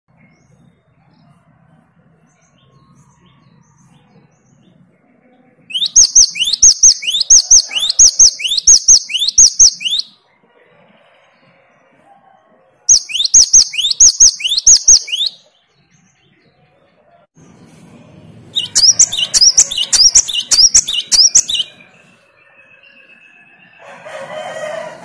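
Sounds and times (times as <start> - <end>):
bird singing whistled phrases: 5.7 - 10.2, 12.9 - 15.5, 18.6 - 23.8.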